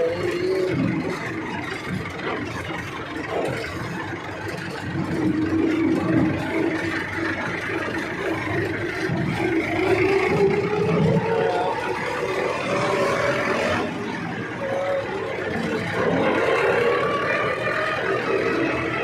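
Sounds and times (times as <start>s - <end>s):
vehicle engine droning: 0.0s - 19.0s.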